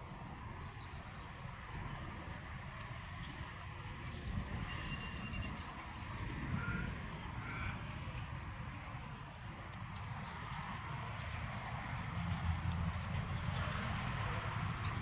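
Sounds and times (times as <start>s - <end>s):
wind rumbling on microphone: 0.0s - 15.0s
high pulsed beep: 4.7s - 5.5s.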